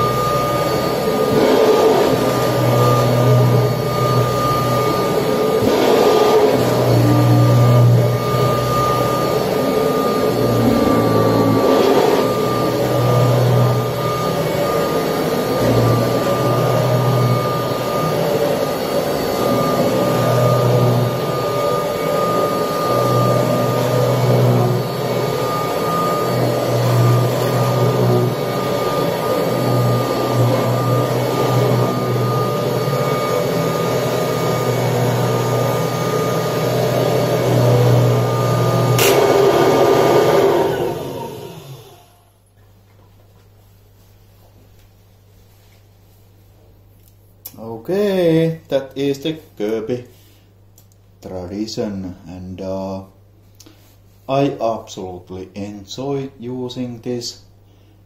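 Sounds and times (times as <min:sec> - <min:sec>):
upright vacuum cleaner running: 0:00.0 - 0:42.4.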